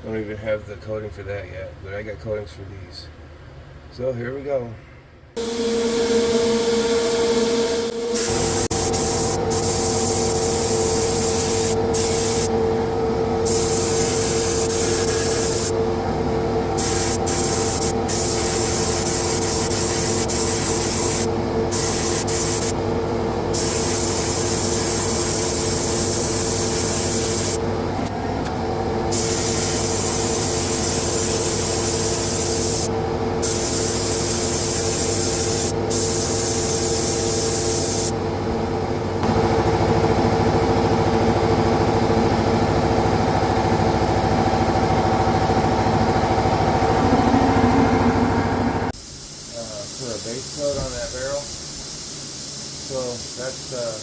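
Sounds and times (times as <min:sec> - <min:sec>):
steady machine hum: 0:05.1 - 0:54.0
spray gun hissing: 0:05.4 - 0:12.6, 0:13.4 - 0:15.8, 0:16.7 - 0:27.6, 0:29.1 - 0:38.1, 0:49.0 - 0:54.0.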